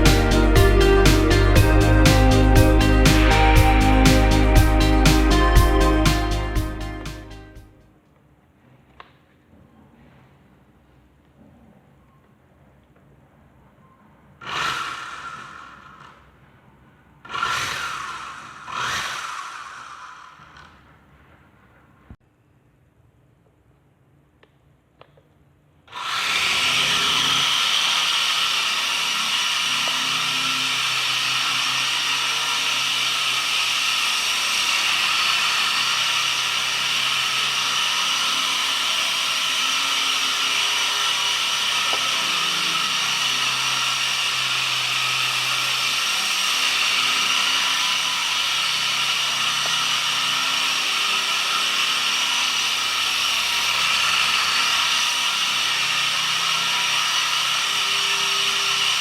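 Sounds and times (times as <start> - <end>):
electric motors whining: 0.0 - 7.6, 17.3 - 20.8, 25.9 - 59.0.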